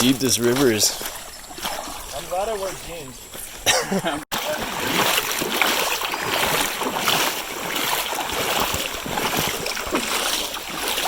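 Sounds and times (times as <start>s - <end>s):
river water rushing: 4.3s - 11.0s.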